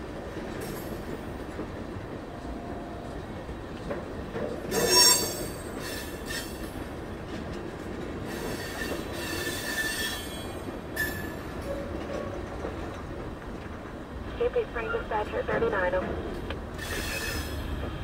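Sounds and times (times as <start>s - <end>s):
train wheels rolling on rails: 0.0s - 18.0s
high wheel squeals: 4.7s - 6.6s, 8.3s - 11.9s, 16.8s - 17.8s.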